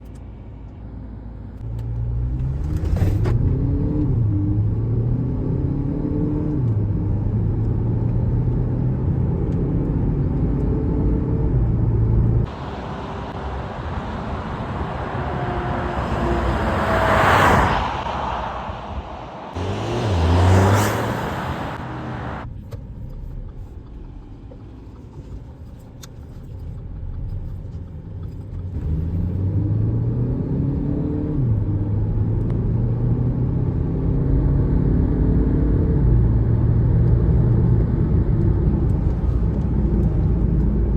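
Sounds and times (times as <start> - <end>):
car engine accelerating hard: 1.7 - 22.5, 28.2 - 40.9
loud rushing noise: 12.5 - 22.4.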